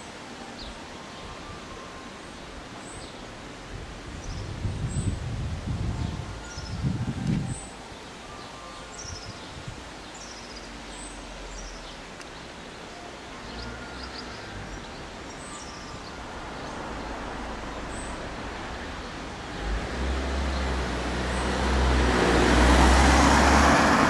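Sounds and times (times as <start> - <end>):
car approaching: 13.4 - 24.0.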